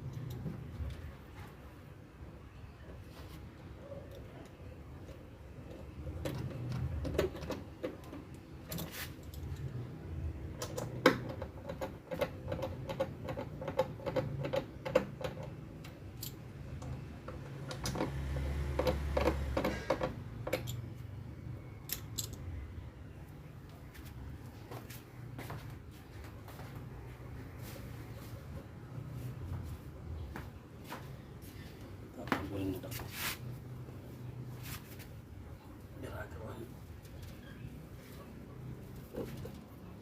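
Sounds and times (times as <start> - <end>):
parts clicking and tapping: 4.1 - 21.1, 21.8 - 22.5.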